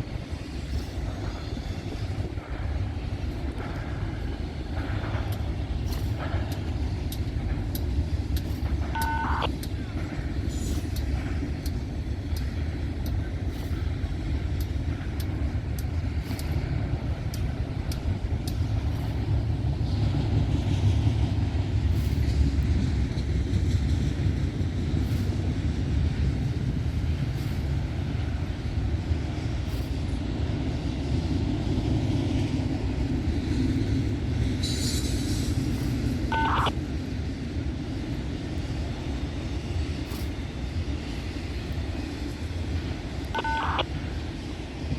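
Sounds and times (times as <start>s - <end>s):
freight train rumbling past: 0.0s - 44.9s
train clicks: 0.0s - 44.9s.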